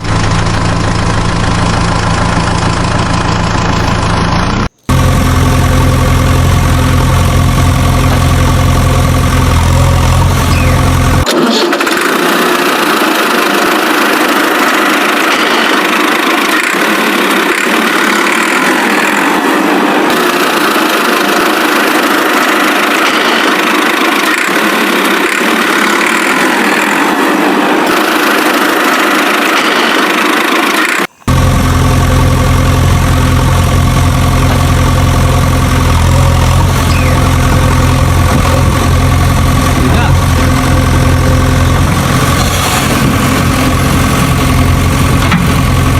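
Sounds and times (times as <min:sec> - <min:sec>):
deep engine idling: 0:00.0 - 0:11.3, 0:31.0 - 0:45.9
thin vehicle engine running: 0:00.0 - 0:45.9.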